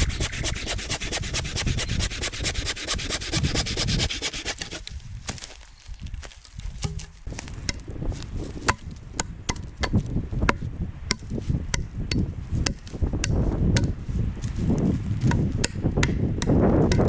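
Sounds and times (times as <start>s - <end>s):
hand tool striking wood: 2.2s - 5.4s, 6.8s - 7.9s, 8.6s - 14.2s, 15.2s - 17.0s.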